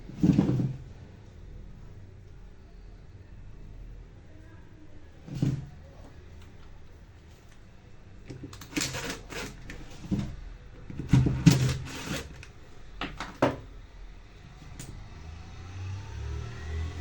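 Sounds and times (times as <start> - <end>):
hard objects clicking and rattling: 8.3 - 10.2.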